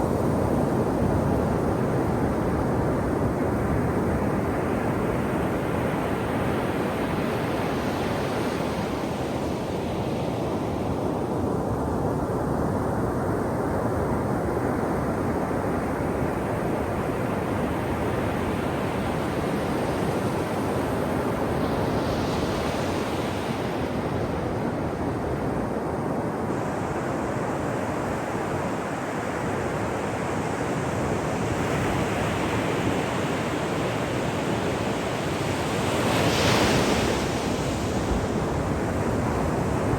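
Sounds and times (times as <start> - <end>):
waves breaking on shore: 30.9 - 39.9.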